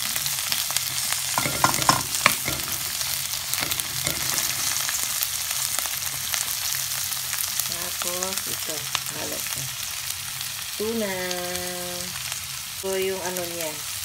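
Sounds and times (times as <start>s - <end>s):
onions sizzling in hot oil: 0.0s - 14.0s
wooden spoon knocking and scraping pan: 1.4s - 5.0s.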